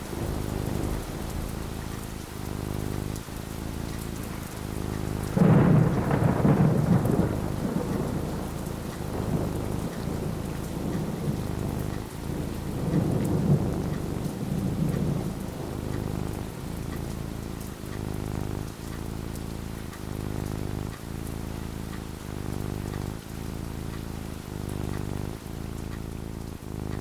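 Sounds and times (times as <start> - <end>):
thunder rumbling: 0.0 - 21.0
steady rain: 0.0 - 27.0.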